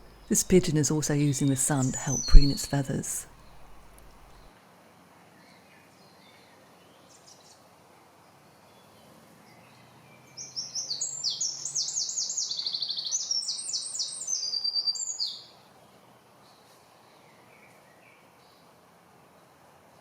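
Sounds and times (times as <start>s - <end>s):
songbird singing with trill: 0.0s - 3.8s, 10.4s - 15.4s
faint outdoor background noise: 0.0s - 20.0s.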